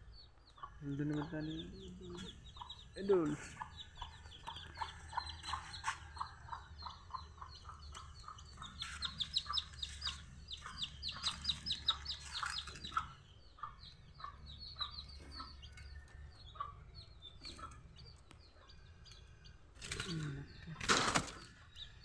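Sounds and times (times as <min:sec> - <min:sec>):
low bird chirps: 0:00.0 - 0:22.0
high falling bird chirps: 0:07.6 - 0:18.7.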